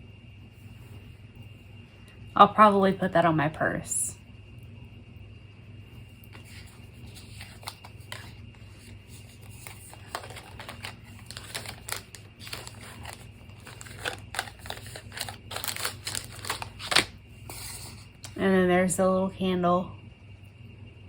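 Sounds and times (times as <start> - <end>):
packaging rustling and crinkling: 6.4 - 18.4.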